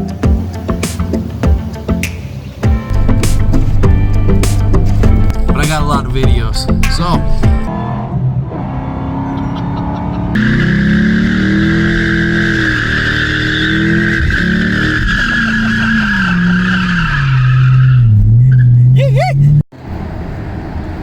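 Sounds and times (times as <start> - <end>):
car engine revving hard: 2.9 - 18.6.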